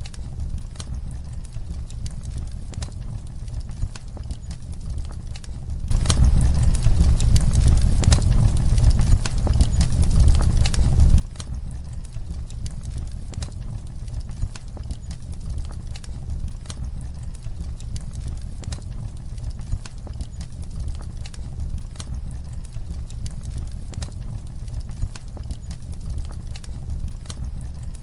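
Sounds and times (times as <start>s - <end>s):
fire pops: 0.0s - 28.0s
fireplace fire crackling: 0.0s - 28.0s
low steady rumble: 0.0s - 28.0s.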